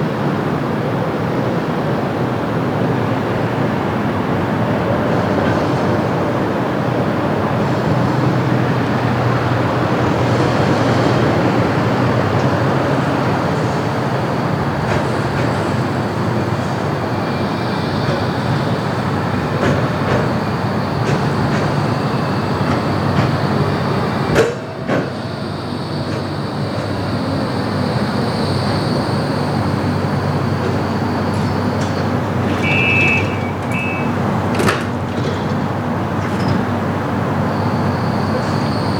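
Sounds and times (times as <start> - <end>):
tram wheels and motor: 0.0 - 38.9
high electronic beeps: 32.6 - 34.2.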